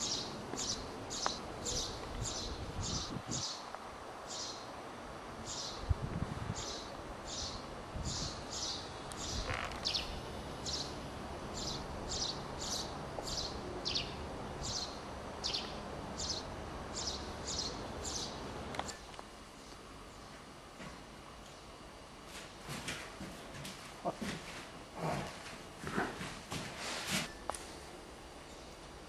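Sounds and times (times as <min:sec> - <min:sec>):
low rumble of outdoor noise: 0:00.0 - 0:29.0
small bird chirping: 0:06.6 - 0:10.9, 0:11.6 - 0:16.4.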